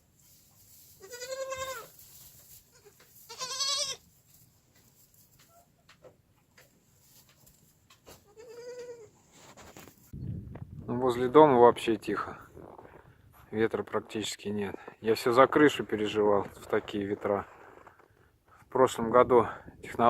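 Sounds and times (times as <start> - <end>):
goat kids bleating: 1.0 - 4.1, 8.1 - 9.1.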